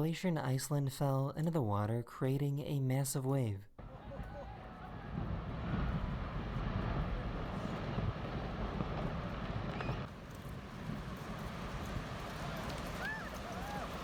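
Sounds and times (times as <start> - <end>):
glacier ice collapsing rumble: 4.5 - 14.0.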